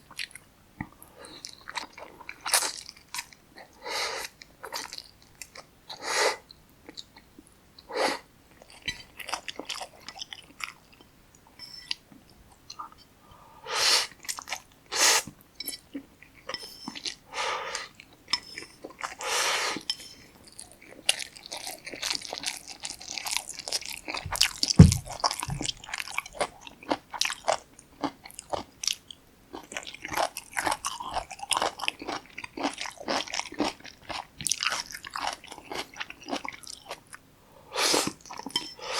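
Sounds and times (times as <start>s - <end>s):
wet chewing and crunching: 8.5s - 11.1s, 15.6s - 37.2s
low thump: 24.3s - 25.7s.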